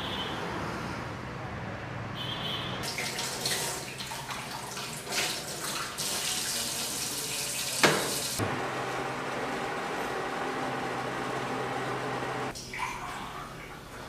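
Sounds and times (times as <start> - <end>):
tap water running into sink: 2.8 - 8.4.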